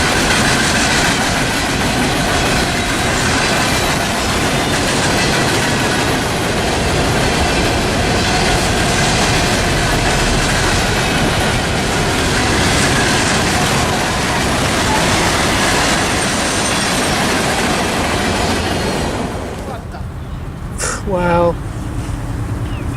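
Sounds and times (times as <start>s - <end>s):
train cars rolling past: 0.0s - 22.9s.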